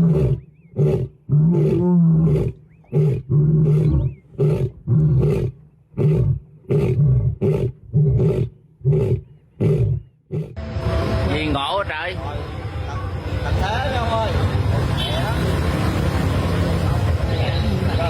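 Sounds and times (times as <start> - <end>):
animal roaring and grunting: 0.0 - 10.6.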